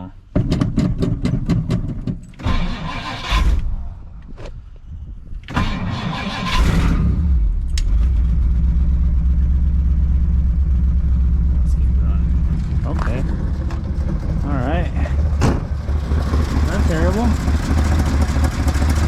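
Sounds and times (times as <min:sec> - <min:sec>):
starter motor cranking engine: 0:02.4 - 0:03.7, 0:05.5 - 0:07.2, 0:12.6 - 0:19.0
car engine running: 0:07.3 - 0:19.0.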